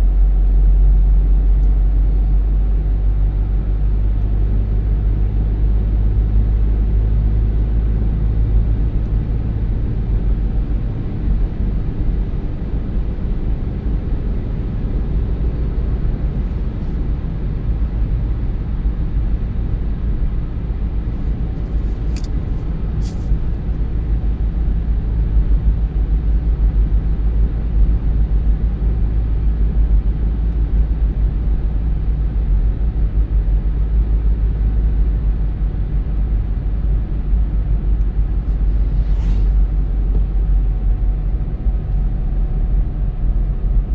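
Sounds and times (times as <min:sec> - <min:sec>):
car tyres and engine rumble: 0:00.0 - 0:43.9.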